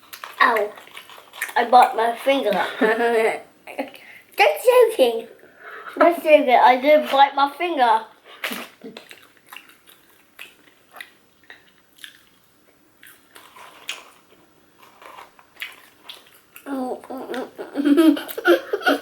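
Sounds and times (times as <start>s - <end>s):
chewing with mouth clicks: 0.0s - 2.3s, 8.4s - 16.7s.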